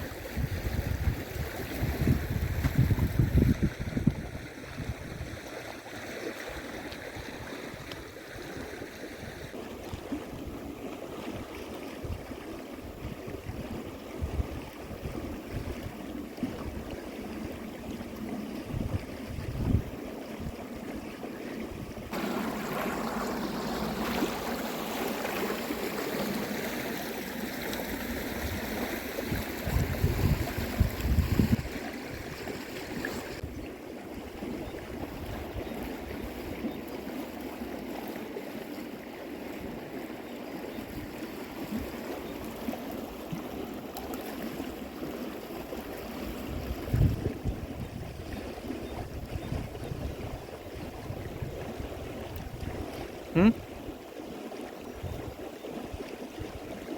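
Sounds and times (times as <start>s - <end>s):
wind on microphone: 0.0s - 5.5s, 12.0s - 20.6s, 28.0s - 36.7s, 46.2s - 53.8s
river water rushing: 22.1s - 33.4s.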